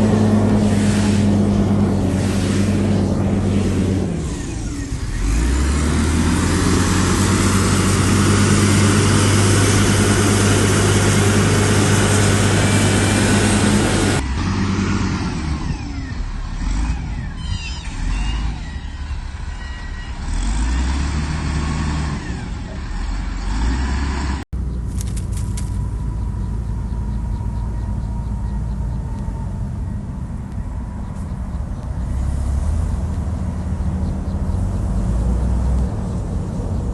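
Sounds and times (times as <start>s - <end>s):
diesel engine under load: 0.0s - 36.9s.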